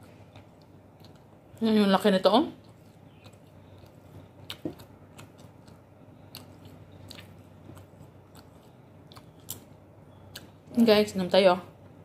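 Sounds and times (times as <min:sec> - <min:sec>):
chewing and gnawing meat: 0:00.0 - 0:01.6, 0:02.6 - 0:10.7
mouth clicks and smacks: 0:02.6 - 0:10.6.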